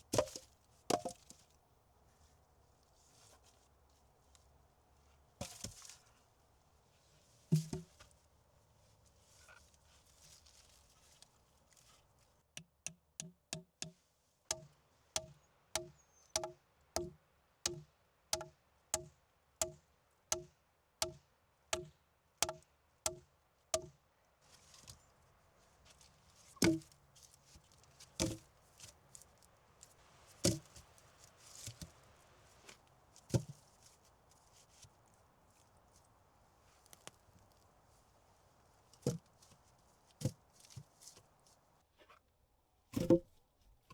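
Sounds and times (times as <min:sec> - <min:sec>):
wood being chopped: 0:00.1 - 0:01.3, 0:07.5 - 0:08.0, 0:15.2 - 0:17.1, 0:21.8 - 0:23.2, 0:26.6 - 0:26.9, 0:28.2 - 0:28.4, 0:43.0 - 0:43.3.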